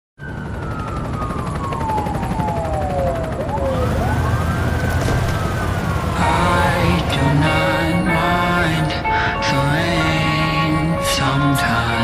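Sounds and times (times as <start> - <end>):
siren-like wail: 0.2 - 11.8
song music: 6.1 - 12.0.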